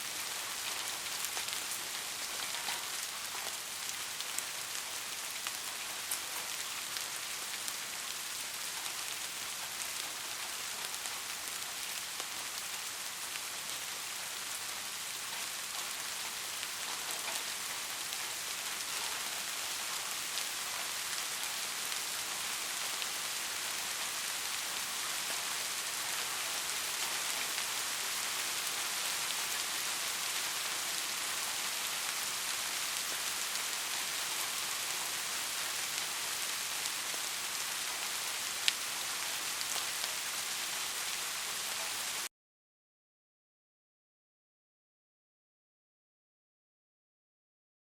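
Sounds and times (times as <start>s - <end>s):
rain pattering on a surface: 0.0s - 42.3s.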